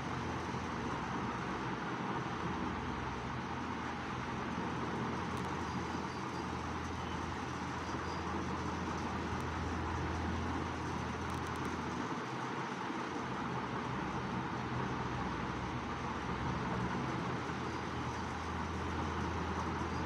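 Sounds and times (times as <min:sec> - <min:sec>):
distant road traffic: 0:00.0 - 0:20.0.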